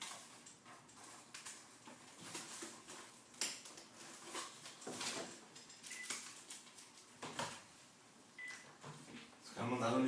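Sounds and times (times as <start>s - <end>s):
packaging rustling and crinkling: 0.0s - 7.7s.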